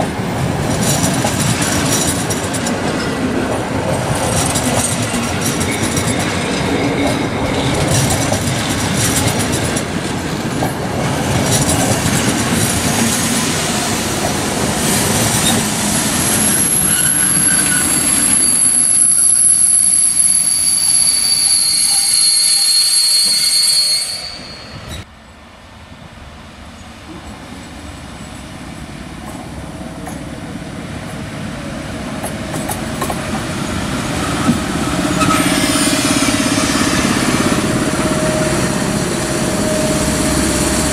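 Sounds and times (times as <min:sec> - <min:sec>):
high-pitched two-tone squeal: 0:15.4 - 0:25.1, 0:34.3 - 0:40.9.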